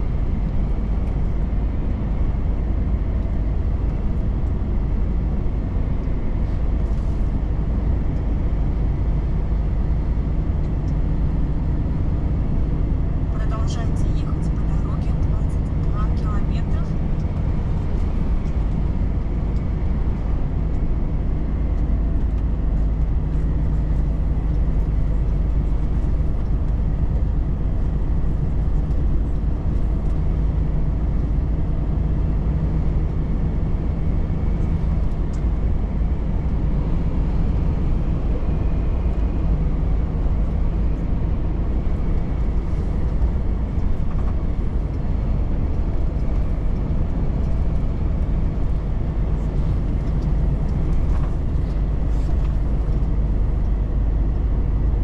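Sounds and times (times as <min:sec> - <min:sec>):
road noise rumble: 0:00.0 - 0:55.0
truck engine running: 0:00.0 - 0:55.0.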